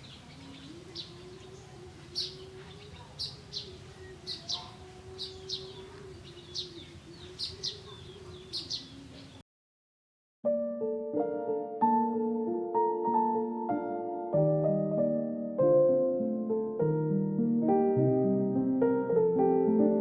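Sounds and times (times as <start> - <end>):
birds chirping: 0.0 - 9.4.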